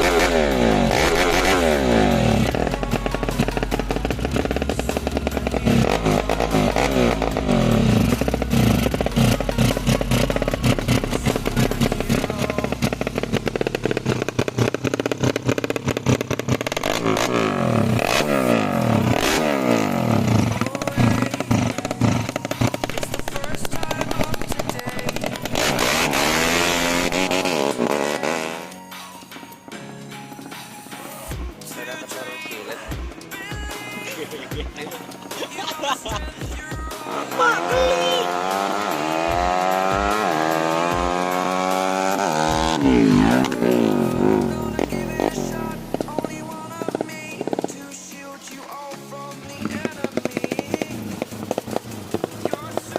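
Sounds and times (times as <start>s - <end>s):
motorcycle engine revving: 0.0s - 29.3s, 31.1s - 52.9s.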